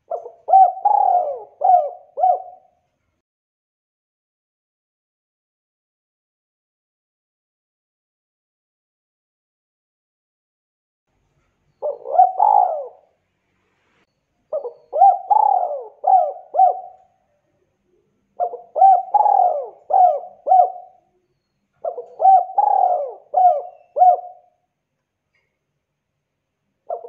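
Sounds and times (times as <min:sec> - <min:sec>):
dove cooing: 0:00.0 - 0:02.8, 0:11.8 - 0:13.1, 0:14.5 - 0:17.2, 0:18.4 - 0:21.2, 0:21.8 - 0:24.6.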